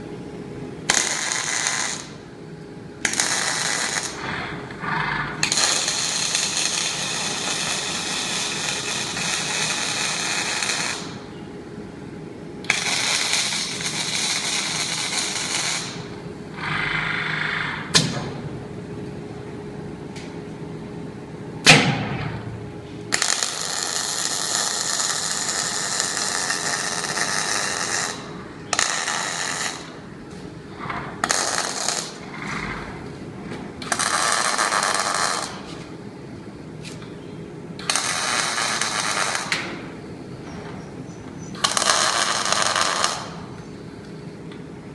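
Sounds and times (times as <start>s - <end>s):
steady machine hum: 0.0s - 44.9s
welding arc crackling and buzzing: 0.8s - 2.3s, 3.0s - 11.3s, 12.6s - 18.2s, 23.1s - 36.0s, 37.8s - 40.0s, 41.4s - 43.6s.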